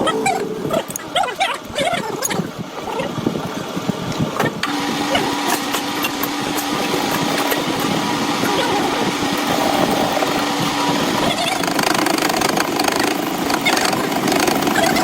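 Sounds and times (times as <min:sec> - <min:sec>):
machine motor humming: 0:00.0 - 0:15.0.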